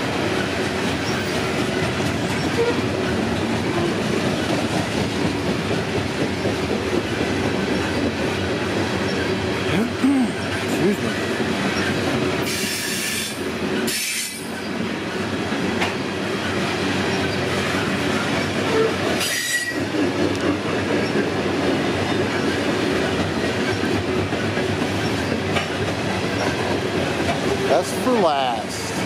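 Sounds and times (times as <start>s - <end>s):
freight cars clattering on rails: 0.0s - 29.0s
high wheel squeals: 18.7s - 19.9s.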